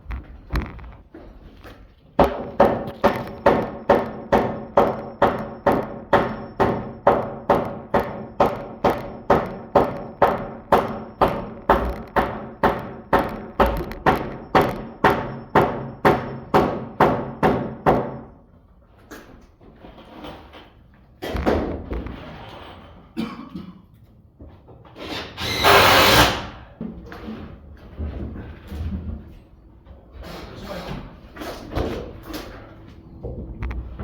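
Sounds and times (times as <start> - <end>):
hammer pounding wood: 2.2 - 18.3.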